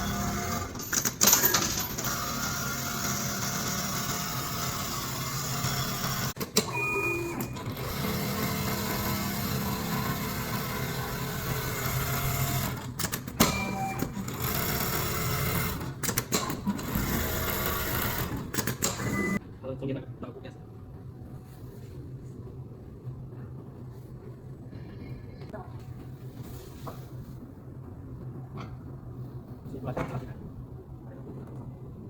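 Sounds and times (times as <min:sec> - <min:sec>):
industrial sewing machine stitching: 0:00.0 - 0:19.4.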